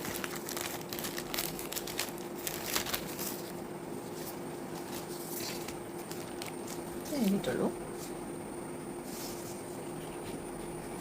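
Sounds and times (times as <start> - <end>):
packet crinkling and crackling: 0.0 - 3.6, 4.8 - 6.8
steady hum: 0.0 - 11.0.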